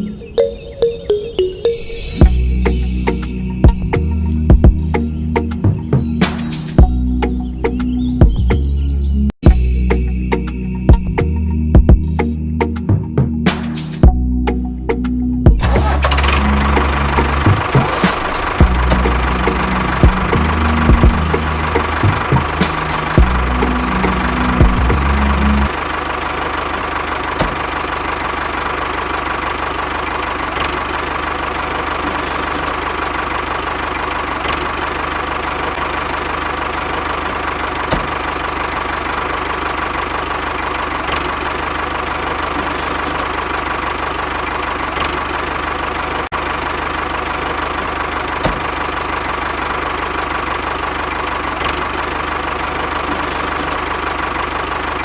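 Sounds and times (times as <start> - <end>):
tractor motor humming: 15.6 - 55.0.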